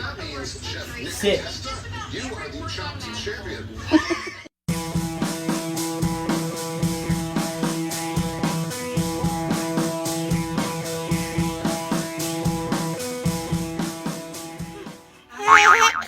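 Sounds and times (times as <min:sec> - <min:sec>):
upbeat music with guitar and drums: 0:04.7 - 0:16.0.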